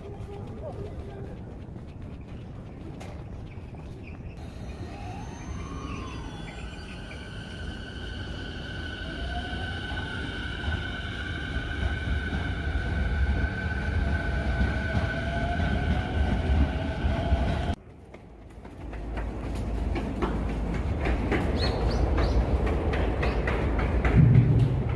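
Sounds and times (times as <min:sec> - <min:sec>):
electric train running past: 0:04.3 - 0:24.9
train wheels clicking: 0:09.6 - 0:24.9.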